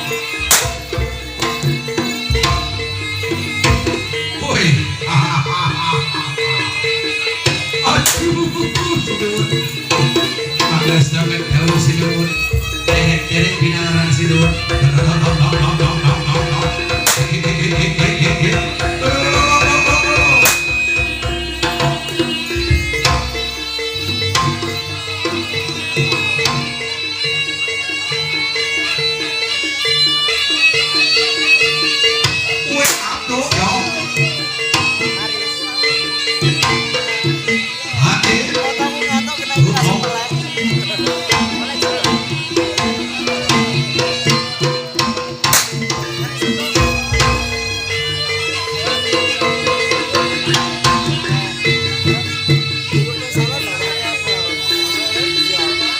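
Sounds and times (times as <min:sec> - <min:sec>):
hand drums beating quick rhythm: 0:00.0 - 0:04.1, 0:14.6 - 0:23.4, 0:36.6 - 0:47.9
hand drums: 0:00.0 - 0:55.9
metallophone notes: 0:00.0 - 0:55.9
ringing pitched metal percussion: 0:00.0 - 0:55.9.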